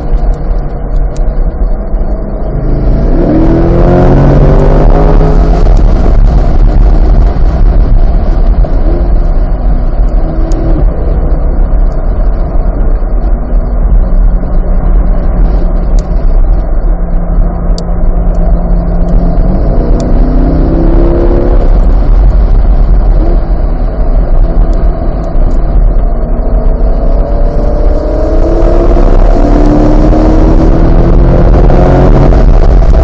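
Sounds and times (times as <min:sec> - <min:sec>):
car engine accelerating hard: 0:00.0 - 0:33.0.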